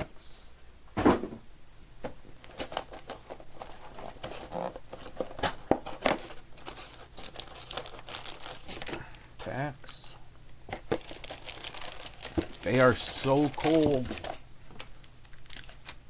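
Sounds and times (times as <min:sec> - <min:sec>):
sharp thump: 0:01.0 - 0:01.4
foil packs crinkling: 0:02.4 - 0:09.2, 0:10.7 - 0:16.0.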